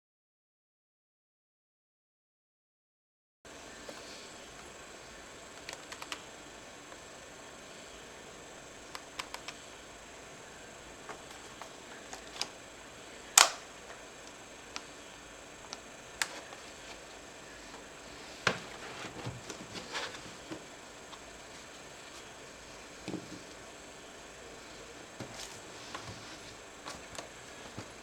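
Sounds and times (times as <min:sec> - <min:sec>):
laptop parts and tools clicking: 0:04.4 - 0:22.4.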